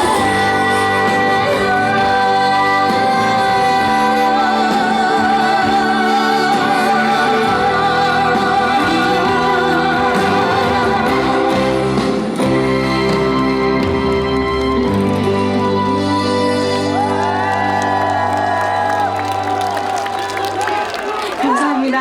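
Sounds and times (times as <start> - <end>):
woman singing with vibrato: 0.0 - 13.7, 15.3 - 18.1
band accompaniment through pa: 0.0 - 21.3.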